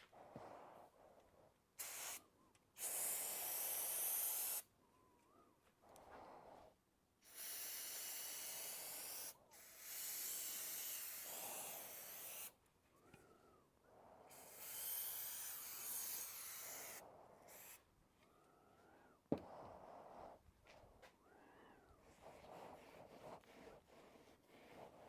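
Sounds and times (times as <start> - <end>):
hissing spray bursts: 1.8 - 2.2, 2.8 - 4.6, 7.3 - 12.5, 14.3 - 17.8.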